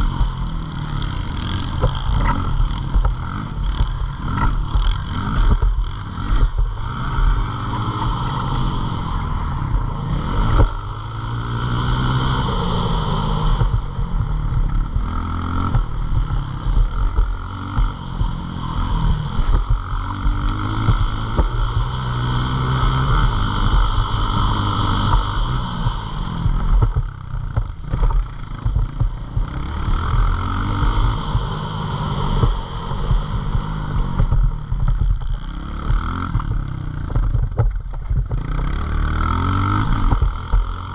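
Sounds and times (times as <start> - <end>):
pit bike engine revving: 0.0 - 40.9.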